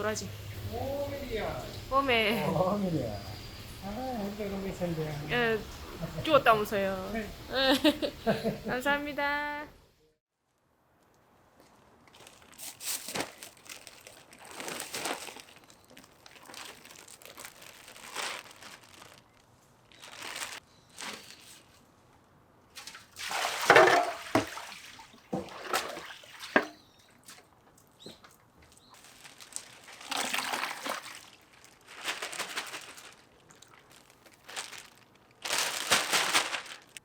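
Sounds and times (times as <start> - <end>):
plastic crinkling: 11.7 - 21.9, 28.7 - 37.0
water sloshing and splashing: 22.7 - 37.0.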